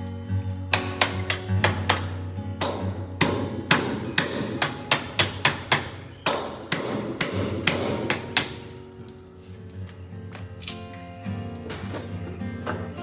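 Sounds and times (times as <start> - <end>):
background music: 0.0 - 13.0
sharp knocks: 0.7 - 8.8.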